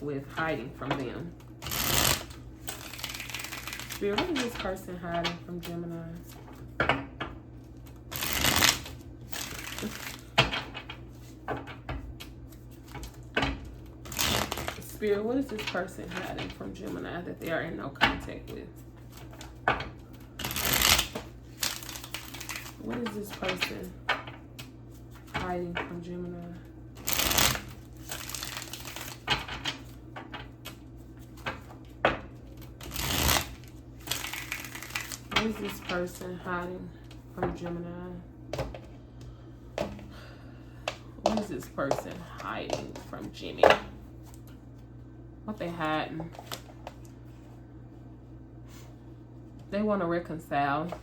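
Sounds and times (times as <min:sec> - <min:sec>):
cards riffling: 0:01.6 - 0:04.0, 0:08.1 - 0:10.4, 0:14.0 - 0:14.8, 0:19.1 - 0:22.8, 0:27.0 - 0:29.8, 0:32.6 - 0:35.9.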